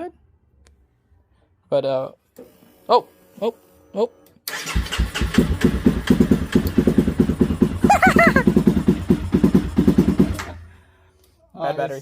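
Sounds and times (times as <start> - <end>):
electric starter cranking engine: 4.4 - 10.7.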